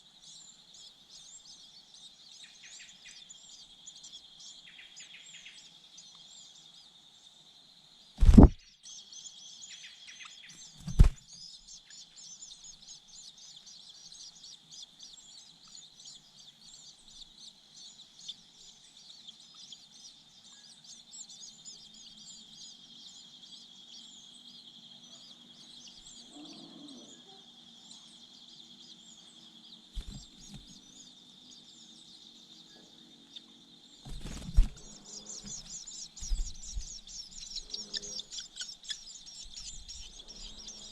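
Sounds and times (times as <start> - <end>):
birds chirping: 0.0 - 40.9
high insect drone: 16.2 - 40.9.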